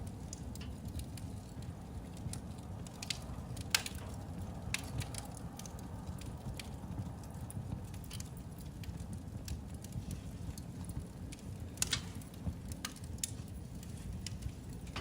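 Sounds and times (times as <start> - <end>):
fire crackling and popping: 0.0 - 15.0
low fire rumble: 0.0 - 15.0.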